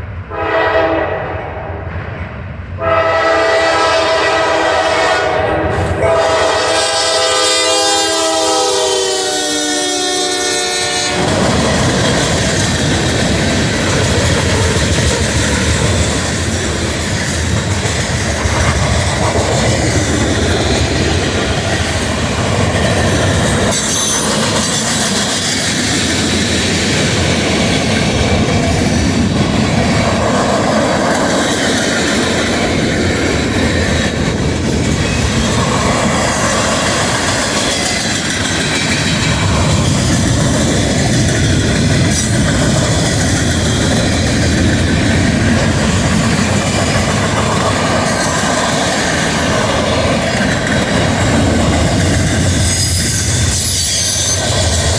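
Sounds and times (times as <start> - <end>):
rattling train cars: 0.0 - 54.9
train wheels rushing on rails: 0.0 - 54.9
locomotive horn blast: 0.3 - 1.8, 2.8 - 11.5.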